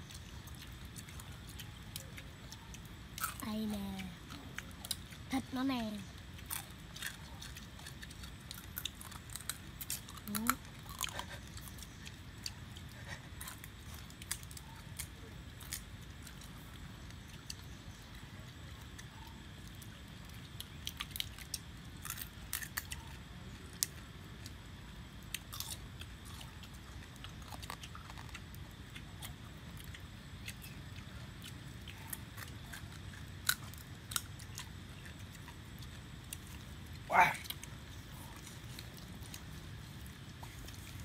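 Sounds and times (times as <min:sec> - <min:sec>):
people chewing crab: 0:00.0 - 0:41.0
crab shells cracking: 0:06.0 - 0:39.5.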